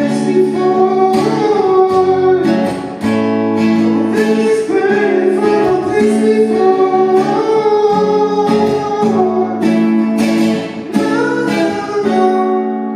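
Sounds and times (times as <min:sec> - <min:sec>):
strummed guitar chords: 0:00.0 - 0:12.9.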